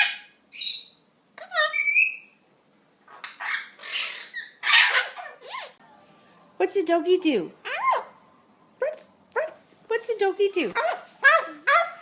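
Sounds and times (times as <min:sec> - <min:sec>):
parrot chattering and squawking: 0:00.0 - 0:02.4, 0:03.1 - 0:05.8, 0:07.6 - 0:08.2, 0:10.8 - 0:12.0.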